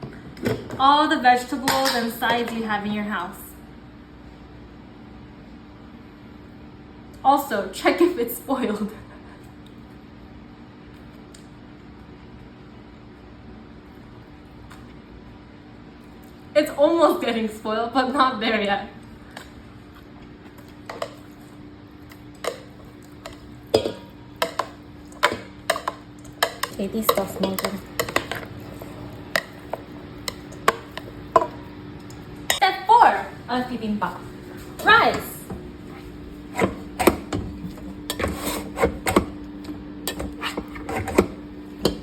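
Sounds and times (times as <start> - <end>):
utensils clinking against dishes: 22.5 - 31.6, 37.8 - 39.3.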